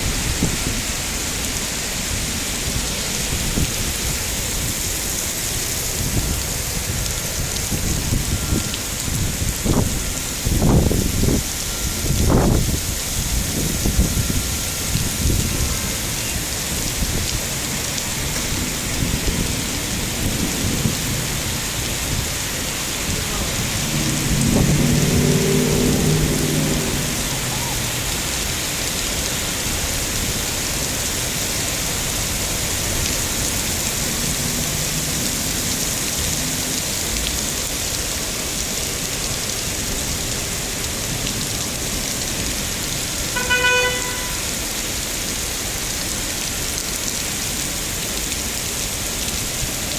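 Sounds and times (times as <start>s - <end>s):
heavy rain falling: 0.0s - 49.9s
low pitched drone: 23.1s - 28.3s.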